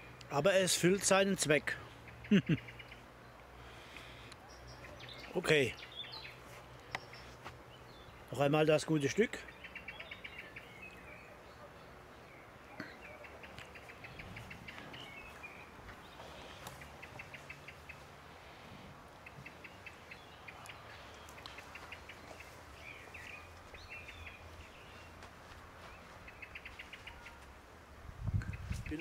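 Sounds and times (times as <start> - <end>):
bird chirps: 2.0 - 3.1, 4.0 - 8.2, 9.4 - 18.1, 19.2 - 25.2, 25.8 - 27.4.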